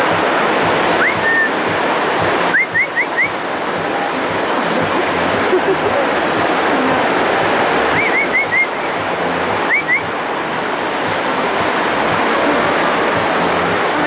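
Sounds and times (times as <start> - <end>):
steady rushing noise: 0.0 - 14.0
birds chirping: 0.9 - 14.0.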